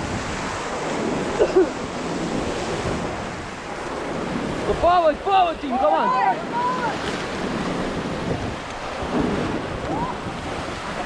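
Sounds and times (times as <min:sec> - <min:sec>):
river water rushing and splashing: 0:00.0 - 0:11.0.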